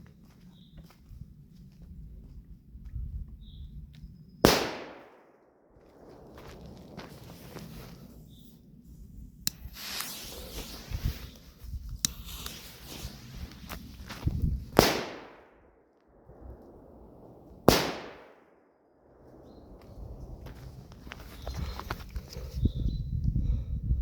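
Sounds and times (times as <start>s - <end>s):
loud firecracker bangs echoing: 4.4s - 5.4s, 14.7s - 15.6s, 17.6s - 18.5s
firecracker cracks and hissing: 4.5s - 5.0s, 9.5s - 13.9s, 14.6s - 15.4s, 17.6s - 18.3s.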